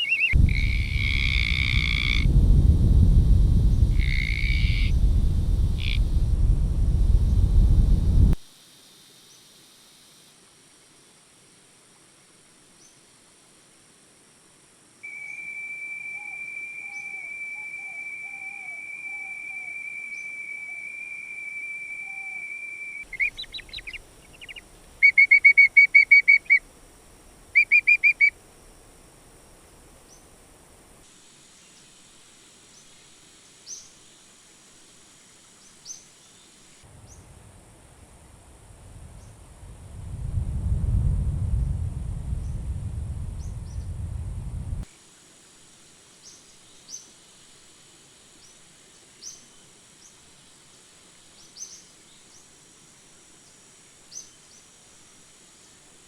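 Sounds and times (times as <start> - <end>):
whistled animal call: 0.0 - 2.2, 15.0 - 26.6
high-pitched insect hum: 0.0 - 56.0.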